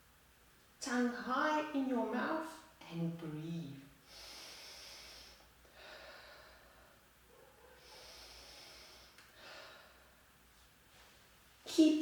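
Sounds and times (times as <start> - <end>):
woman breathing softly: 4.0 - 7.1, 7.7 - 10.3.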